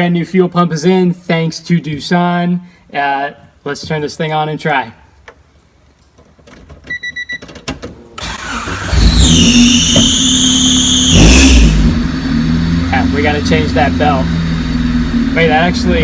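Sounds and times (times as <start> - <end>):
car engine starting and idling: 8.2 - 16.0
belt squeal: 8.4 - 11.9.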